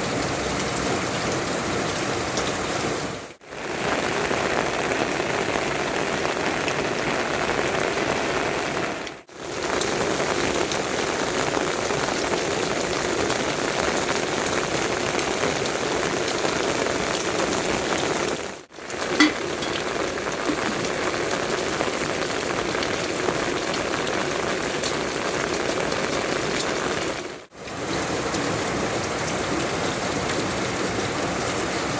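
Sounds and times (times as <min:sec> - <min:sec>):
steady rainfall: 0:00.0 - 0:31.9.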